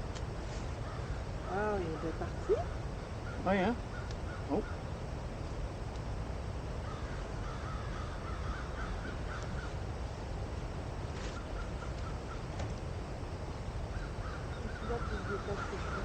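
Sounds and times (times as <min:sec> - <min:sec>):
bird calling: 0:00.6 - 0:04.9, 0:06.8 - 0:09.9, 0:11.2 - 0:12.7, 0:13.8 - 0:16.0
campfire crackling and popping: 0:05.2 - 0:06.2.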